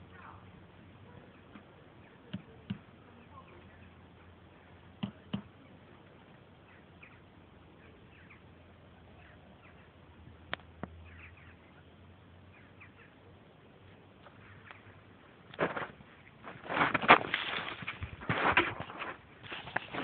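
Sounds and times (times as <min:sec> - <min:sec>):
distant bird chirps: 0:00.0 - 0:15.4.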